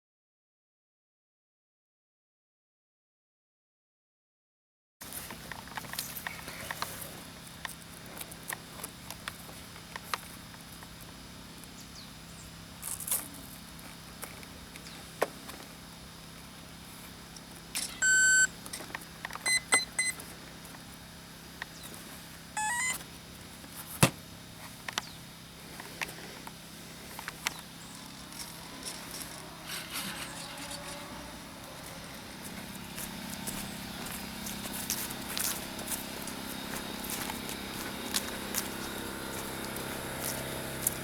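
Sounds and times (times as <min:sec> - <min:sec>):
electronic beeps: 0:17.8 - 0:18.5, 0:19.4 - 0:20.2, 0:22.6 - 0:23.0
rising run of tones: 0:27.9 - 0:40.9.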